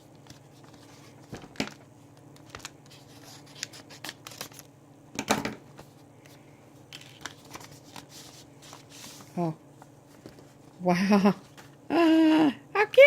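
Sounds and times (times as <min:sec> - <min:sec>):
paper rustling: 0:00.0 - 0:04.7, 0:05.7 - 0:10.8.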